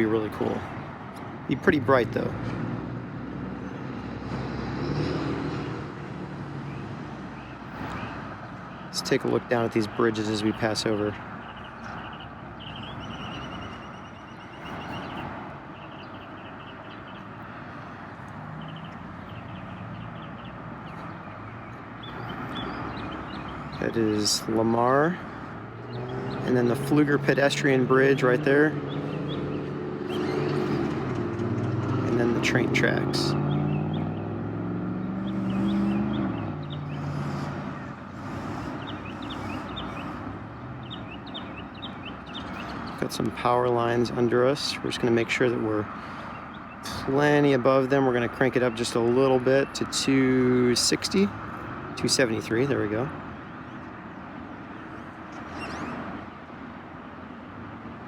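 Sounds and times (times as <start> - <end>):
motor vehicle passing: 0.0 - 43.6
birds chirping: 0.0 - 58.0
distant traffic noise: 0.0 - 58.0.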